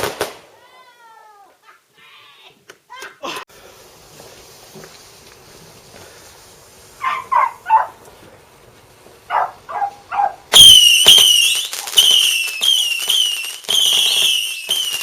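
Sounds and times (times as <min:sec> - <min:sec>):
whistling fireworks with crackles: 0:03.7 - 0:07.9, 0:10.3 - 0:15.0
dog barking: 0:07.0 - 0:08.0, 0:09.3 - 0:10.4.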